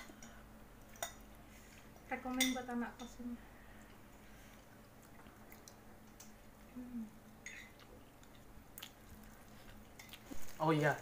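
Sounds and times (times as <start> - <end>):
faint chewing: 3.6 - 11.0.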